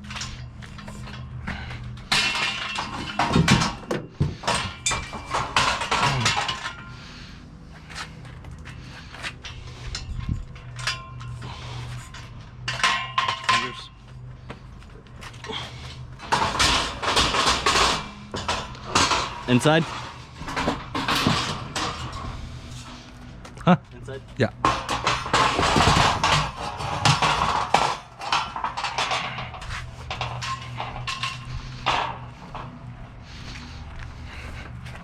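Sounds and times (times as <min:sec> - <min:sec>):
metal scaffolding clanks: 0:00.0 - 0:07.2, 0:07.8 - 0:35.0
steady low hum: 0:00.0 - 0:35.0.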